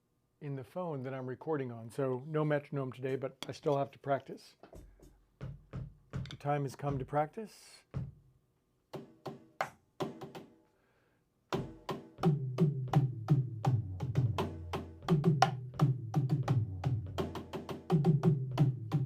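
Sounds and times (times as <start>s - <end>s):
drum kit playing: 4.7s - 7.2s, 11.6s - 19.0s.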